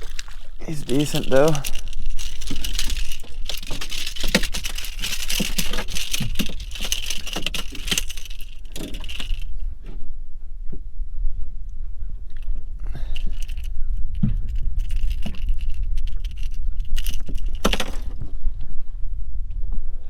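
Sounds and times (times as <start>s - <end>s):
fishing reel clicking: 0.0s - 9.5s.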